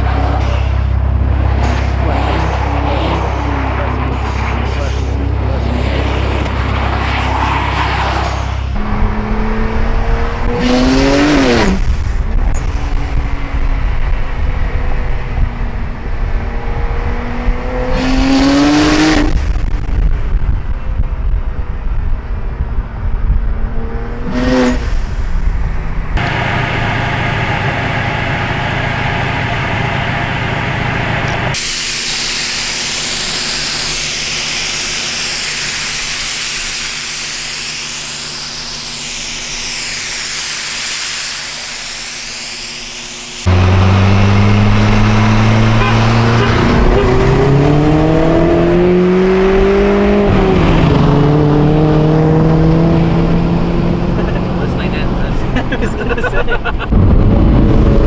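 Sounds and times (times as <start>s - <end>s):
car engine revving: 0.0s - 58.0s
turbo air venting hiss: 31.6s - 43.5s
steady loud hiss: 31.6s - 43.6s.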